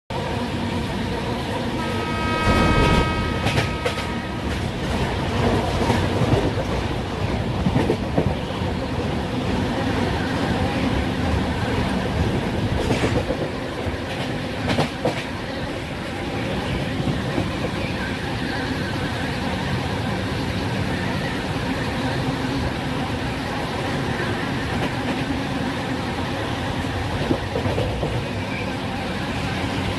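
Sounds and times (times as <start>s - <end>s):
locomotive horn: 1.8s - 5.6s
train wheels clattering on track: 2.8s - 19.4s, 23.8s - 25.7s, 26.7s - 28.7s.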